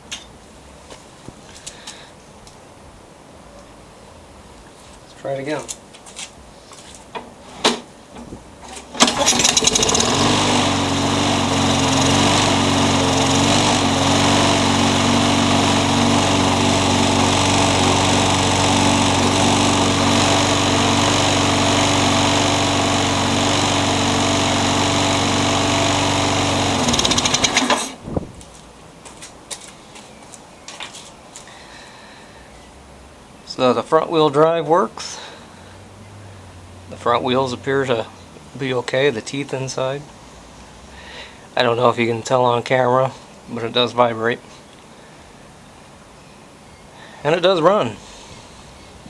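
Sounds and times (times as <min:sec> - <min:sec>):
lawnmower engine starting and running: 0:07.2 - 0:28.4.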